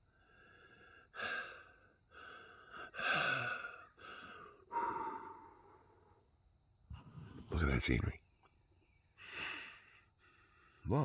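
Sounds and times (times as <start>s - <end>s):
man breathing: 9.2s - 10.9s.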